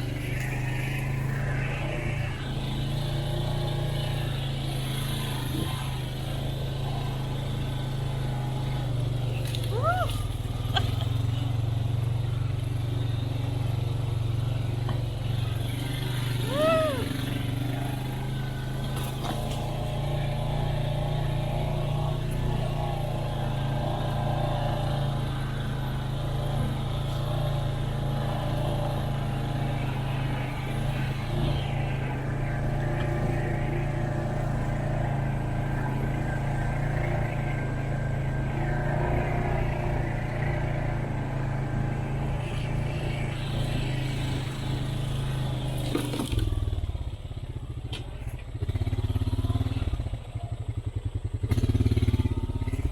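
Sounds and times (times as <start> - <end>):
four-wheeler engine running: 0.0 - 52.9.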